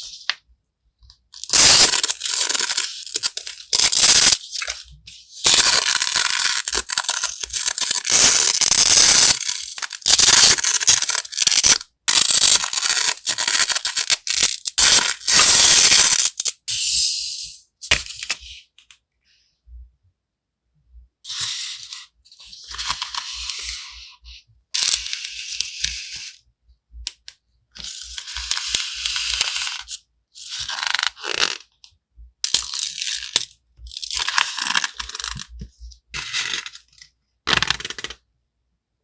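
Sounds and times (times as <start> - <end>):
packaging crinkling and tearing: 1.4 - 4.8, 5.4 - 16.5, 34.1 - 35.5.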